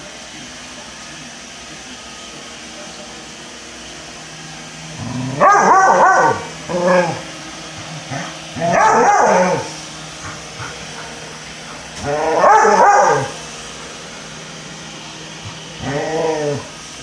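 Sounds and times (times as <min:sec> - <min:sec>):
robot vacuum humming: 0:00.0 - 0:17.0
dog barking: 0:05.3 - 0:07.2, 0:08.1 - 0:11.2, 0:12.0 - 0:13.4.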